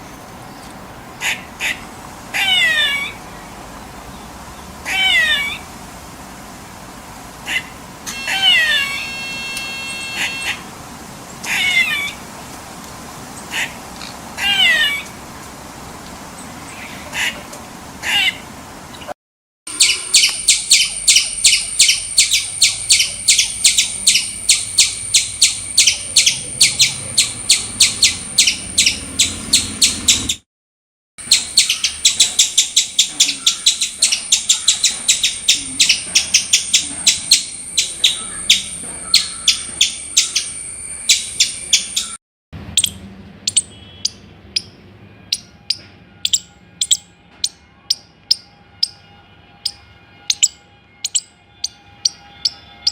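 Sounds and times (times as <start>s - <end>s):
squirrel chattering alarm calls: 1.2s - 3.5s, 4.8s - 5.7s, 7.4s - 10.7s, 11.3s - 12.2s, 13.4s - 15.1s, 18.0s - 18.5s, 19.7s - 30.4s, 31.2s - 42.2s, 42.8s - 49.0s, 49.6s - 52.9s.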